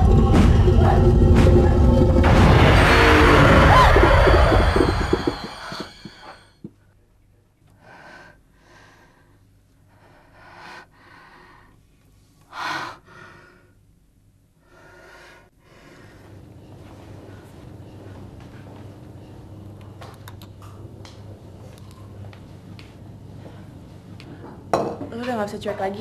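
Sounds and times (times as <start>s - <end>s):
music: 0.0s - 6.5s
loud crash: 2.2s - 6.4s.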